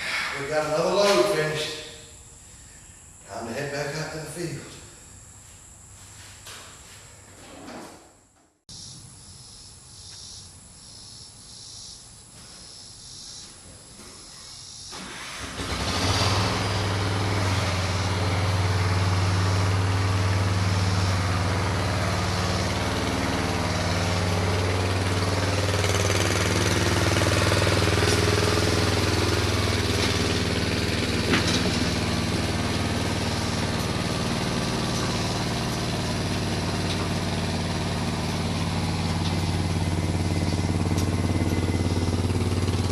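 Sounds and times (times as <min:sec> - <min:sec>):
garden tractor engine: 0:14.9 - 0:42.9.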